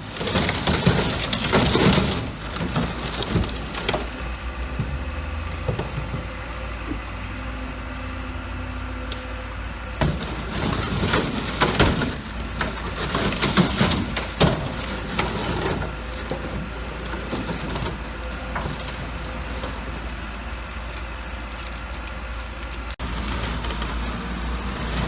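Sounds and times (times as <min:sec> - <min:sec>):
metal crunching and cracking: 0:00.0 - 0:06.6, 0:09.1 - 0:25.0
diesel engine running: 0:00.0 - 0:25.0.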